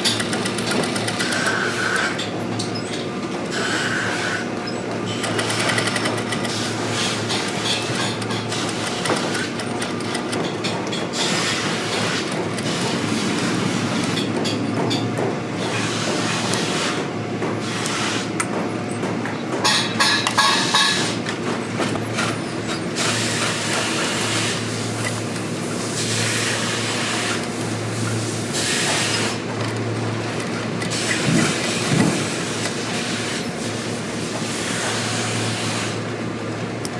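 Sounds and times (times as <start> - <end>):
mechanical clicking and rattling: 0.0 - 2.7, 5.0 - 13.4.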